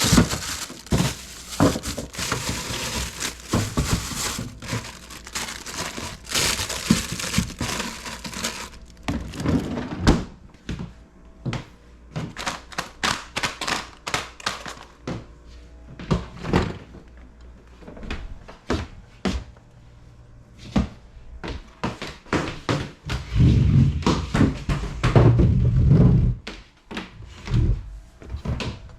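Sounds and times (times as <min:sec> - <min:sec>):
containers knocking and clunking: 0:00.0 - 0:10.2
plastic rustling and crinkling: 0:00.0 - 0:10.3, 0:12.4 - 0:15.0.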